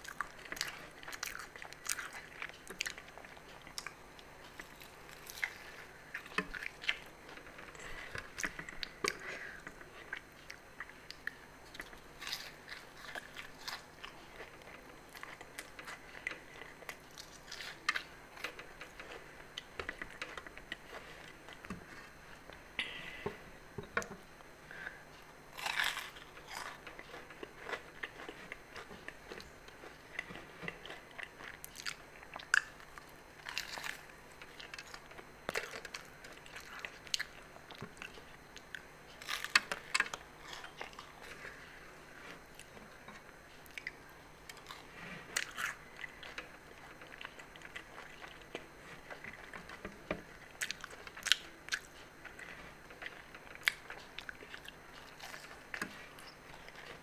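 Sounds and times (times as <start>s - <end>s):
wet chewing: 0.0s - 22.6s, 42.4s - 57.0s
pastry crunching: 0.0s - 22.7s, 25.1s - 57.0s.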